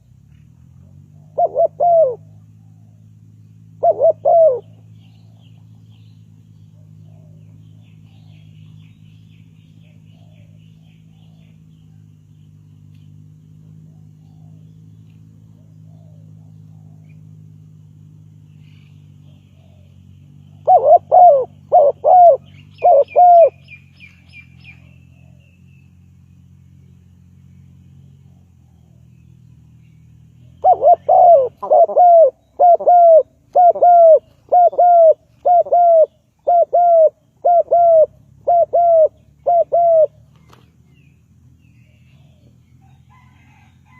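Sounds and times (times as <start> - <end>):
low steady hum: 0.0 - 43.9
small bird chirping: 0.0 - 43.9
dove cooing: 0.9 - 3.0, 3.6 - 5.7, 6.6 - 8.6, 9.8 - 12.0, 13.7 - 17.4, 18.6 - 25.6, 30.5 - 40.5.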